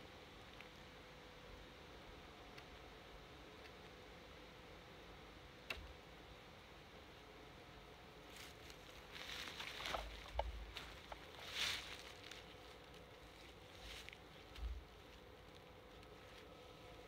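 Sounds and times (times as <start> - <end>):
scraping and rustling: 8.3 - 16.6.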